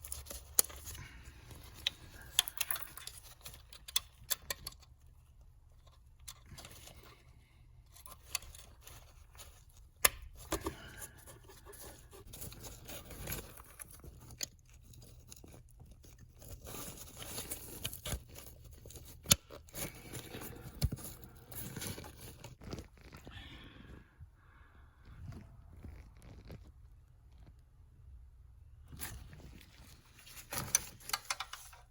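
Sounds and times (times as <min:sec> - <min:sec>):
tools clicking and scraping: 0:00.0 - 0:22.6, 0:30.2 - 0:31.9.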